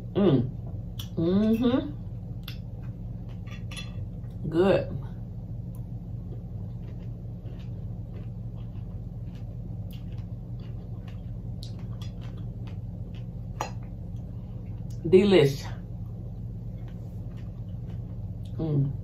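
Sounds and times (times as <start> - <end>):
low hum: 0.0 - 19.0
chewing fruit: 5.7 - 15.0, 15.9 - 19.0.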